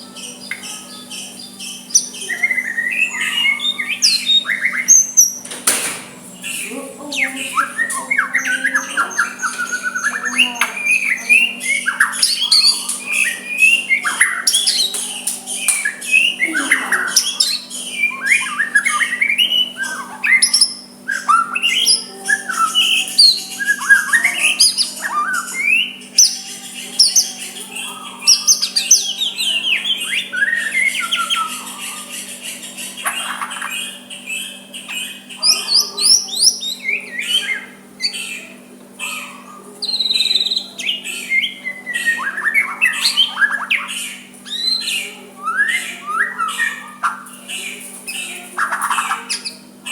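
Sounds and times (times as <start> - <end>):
steady low hum: 0.0 - 49.9
bird singing varied whistles: 7.5 - 26.4.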